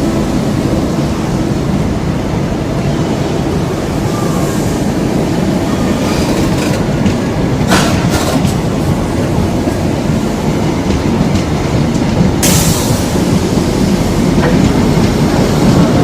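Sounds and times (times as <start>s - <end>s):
train coaches rumbling: 0.0s - 16.0s
wheels clicking over rail joints: 5.9s - 8.8s.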